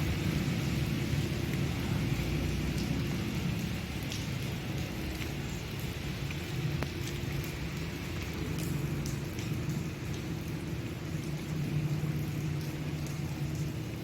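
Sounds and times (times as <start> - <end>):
steady rain falling: 0.0 - 14.0
drops ticking on a surface: 2.7 - 11.5.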